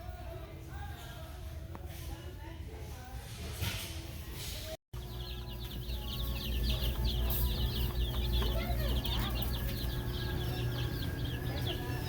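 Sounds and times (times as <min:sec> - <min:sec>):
chicks peeping: 0:05.0 - 0:12.0
steady low hum: 0:05.0 - 0:12.0.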